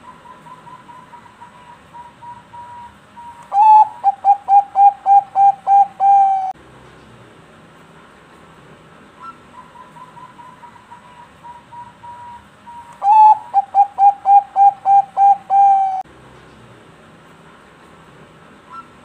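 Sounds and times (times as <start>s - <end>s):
dove cooing: 0.0s - 6.6s, 13.0s - 16.0s.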